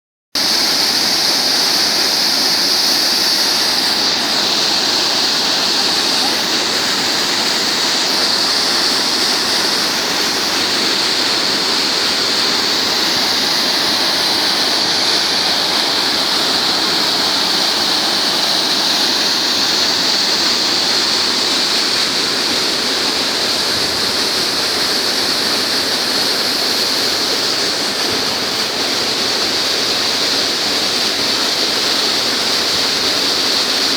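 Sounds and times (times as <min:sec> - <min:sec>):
river water rushing: 0:00.4 - 0:33.9.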